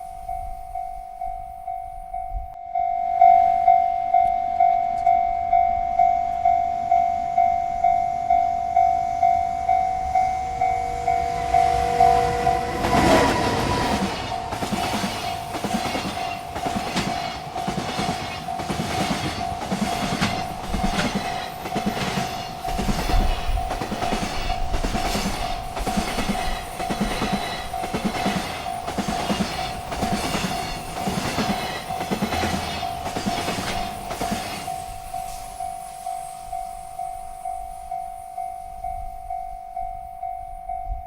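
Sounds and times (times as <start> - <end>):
crossing signal ringing: 0.0 - 41.0
train wheels clacking on rails: 7.8 - 40.2.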